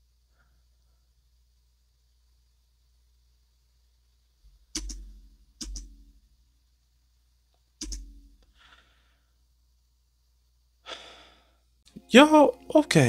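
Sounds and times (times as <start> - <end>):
sharp double clicks with thump: 7.8 - 8.4
faint breath: 8.4 - 9.4, 10.8 - 11.7.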